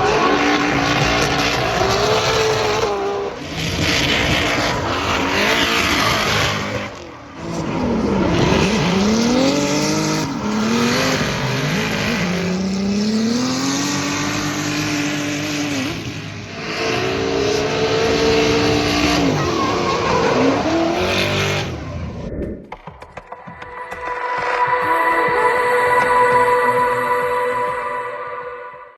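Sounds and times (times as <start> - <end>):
tyres squealing: 0.0 - 15.7, 17.0 - 22.0
car engine revving: 0.0 - 22.3.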